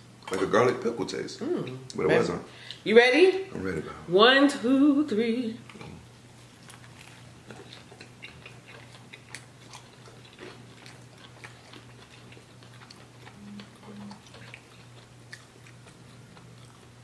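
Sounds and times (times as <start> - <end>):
low electrical hum: 0.0 - 17.0
people chewing crispy food: 5.6 - 17.0.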